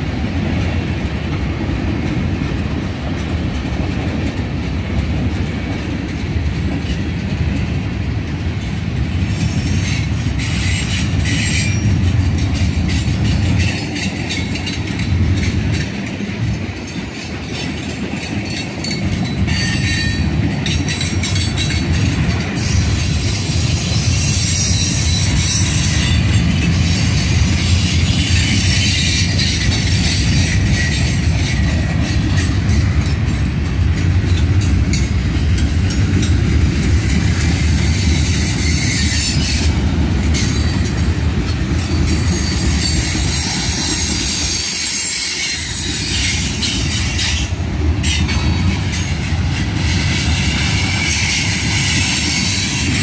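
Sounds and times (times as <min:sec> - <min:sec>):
freight train rumbling past: 0:00.0 - 0:53.0
metallic wheel squeal: 0:22.6 - 0:32.5, 0:37.9 - 0:39.7, 0:41.8 - 0:48.2.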